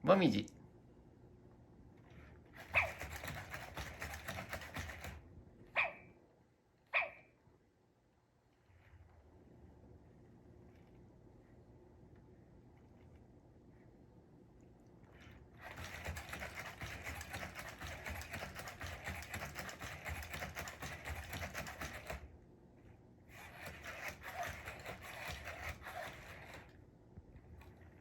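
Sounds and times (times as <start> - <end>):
robot dog motors whirring: 2.5 - 5.2, 15.3 - 22.3, 23.3 - 26.8
rapid clicking: 2.6 - 5.2, 15.6 - 22.3, 23.4 - 26.7.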